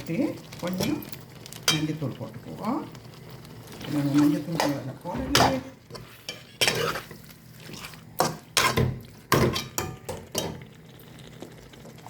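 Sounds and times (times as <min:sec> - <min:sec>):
spoon scraping pan: 0:03.8 - 0:10.6.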